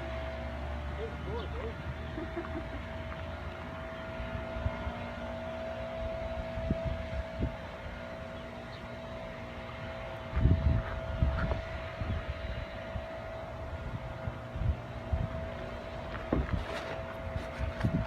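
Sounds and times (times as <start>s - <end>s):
boat motor humming: 0.0s - 18.0s
wind buffeting microphone: 4.0s - 18.0s.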